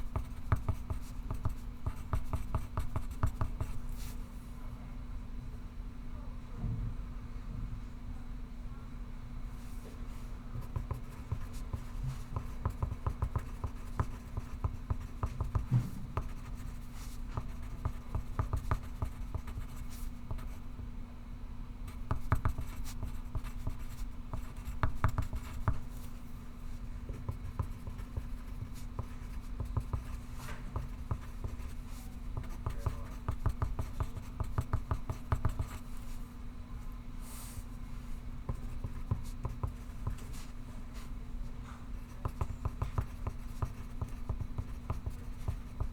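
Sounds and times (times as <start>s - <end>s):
pencil scratching on paper: 0.0s - 4.0s, 10.6s - 20.6s, 21.9s - 26.1s, 27.2s - 36.1s, 42.0s - 45.9s
low room hum: 0.0s - 45.9s.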